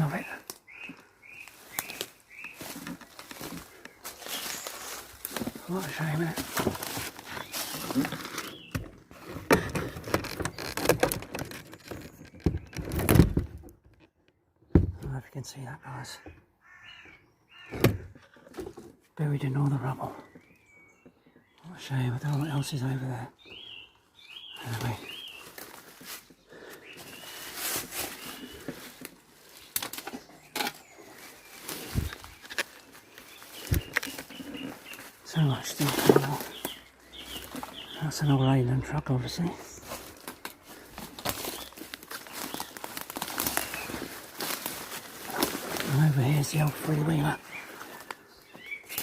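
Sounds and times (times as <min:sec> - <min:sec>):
footsteps crunching over rubble: 0:00.9 - 0:13.1, 0:24.4 - 0:49.0.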